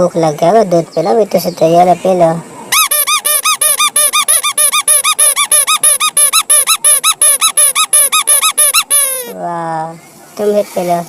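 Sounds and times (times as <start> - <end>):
electronic toy squeaky chirps: 2.7 - 9.4.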